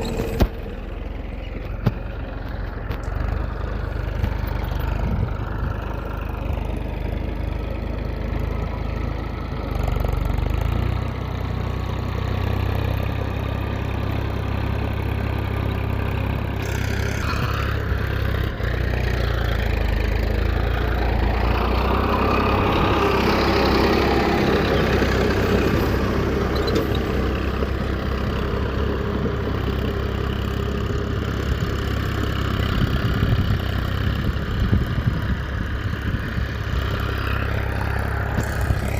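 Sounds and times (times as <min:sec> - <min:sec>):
small motor running: 0:16.6 - 0:17.9.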